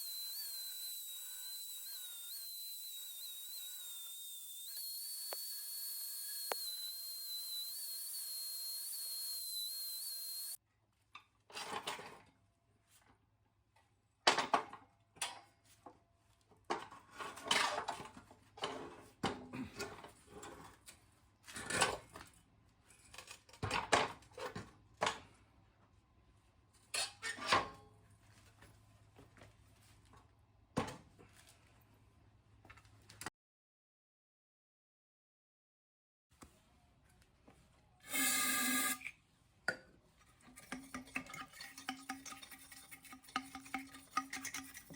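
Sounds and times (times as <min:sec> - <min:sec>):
power tool whining: 0:00.0 - 0:10.6, 0:38.0 - 0:39.1.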